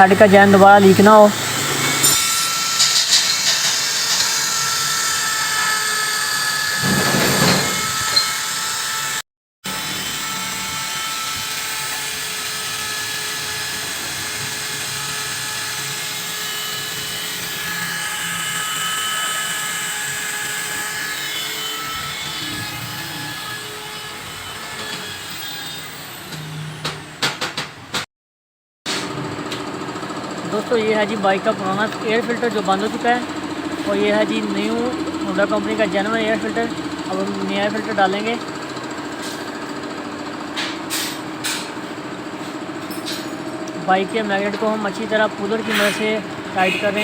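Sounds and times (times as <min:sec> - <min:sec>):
electric drill running: 0:00.2 - 0:20.7.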